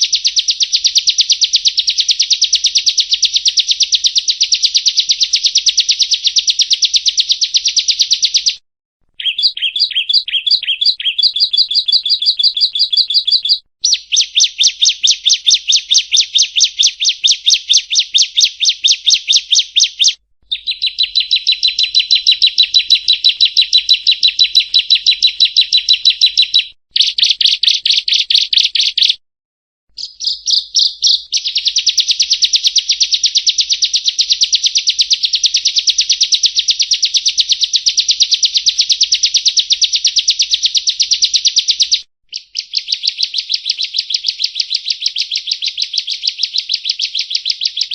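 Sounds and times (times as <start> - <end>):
bird singing rapid trills: 9.2 - 29.2, 30.0 - 47.9.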